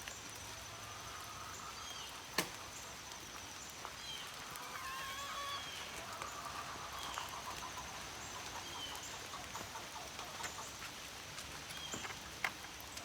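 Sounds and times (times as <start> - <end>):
light rain patter: 0.0 - 13.0
small birds chirping: 2.8 - 13.0.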